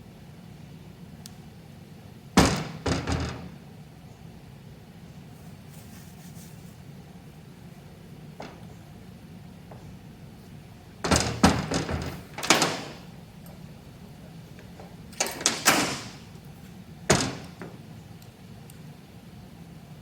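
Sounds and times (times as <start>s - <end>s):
heavy metal parts clunking: 10.8s - 13.7s, 14.5s - 16.4s.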